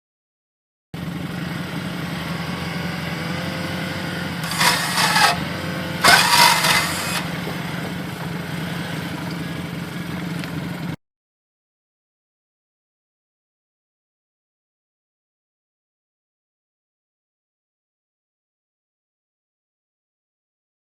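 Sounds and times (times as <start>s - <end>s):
tracked vehicle engine running: 1.0s - 11.0s.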